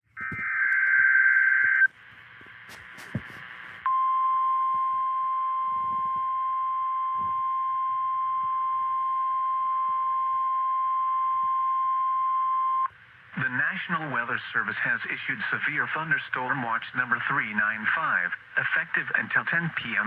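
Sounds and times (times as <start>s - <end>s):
radio hiss: 0.1s - 3.9s, 13.3s - 20.0s.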